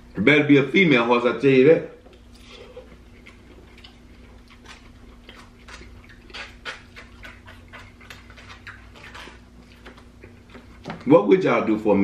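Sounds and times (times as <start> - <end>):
lip smacks: 2.1 - 11.0
chewing with wet mouth clicks: 2.1 - 11.1.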